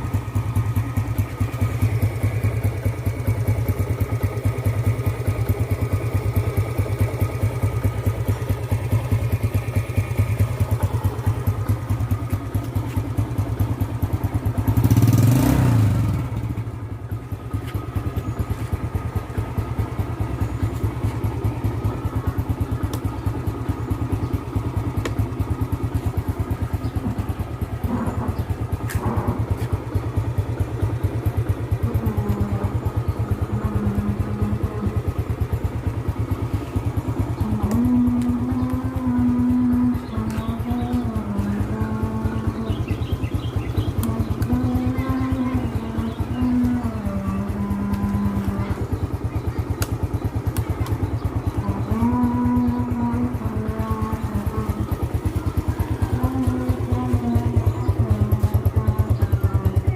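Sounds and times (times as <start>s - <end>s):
motorcycle engine idling: 0.0s - 59.9s
motorcycle engine revving: 0.0s - 59.9s.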